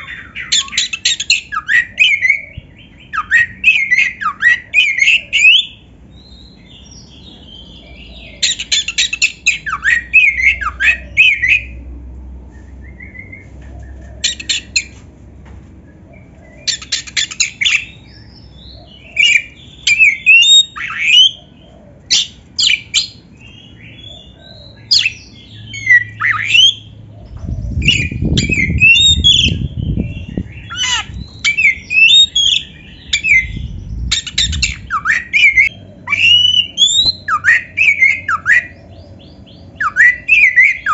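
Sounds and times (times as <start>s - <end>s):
bird singing whistled phrases: 19.2s - 21.4s, 27.8s - 29.6s, 30.6s - 38.8s, 39.8s - 40.9s
low rumble: 27.1s - 31.9s, 32.6s - 36.1s.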